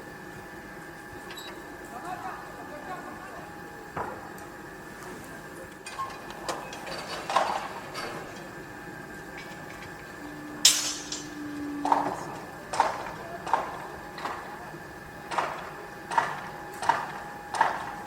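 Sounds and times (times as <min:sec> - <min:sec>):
steady background hum: 0:00.0 - 0:18.0
sharp metallic clang: 0:10.6 - 0:11.4.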